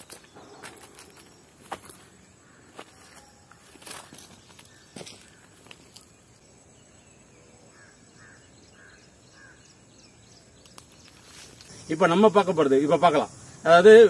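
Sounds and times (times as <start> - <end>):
bird calling: 7.4 - 11.9.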